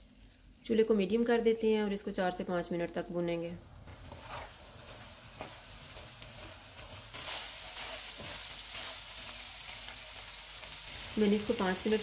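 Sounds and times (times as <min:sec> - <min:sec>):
meat sizzling in oil: 0:03.8 - 0:12.0.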